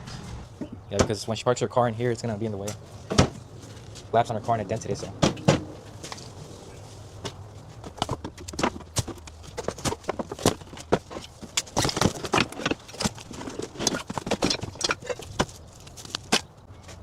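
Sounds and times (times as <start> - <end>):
hard objects knocking and clattering: 7.3 - 16.5.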